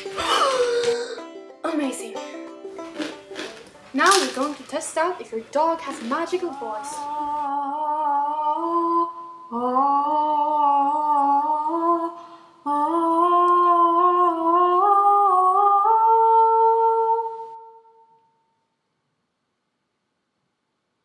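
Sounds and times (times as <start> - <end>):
person humming a tune: 0.0 - 1.4.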